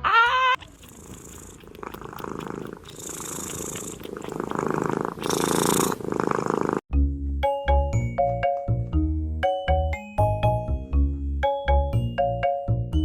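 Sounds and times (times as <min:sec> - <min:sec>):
cat purring: 0:00.6 - 0:06.9
light mallet percussion music: 0:06.9 - 0:13.0.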